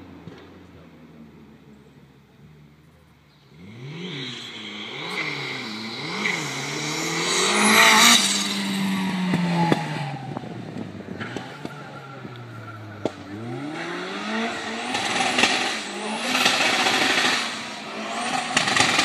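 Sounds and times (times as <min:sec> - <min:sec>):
car engines revving hard: 0:02.5 - 0:19.0.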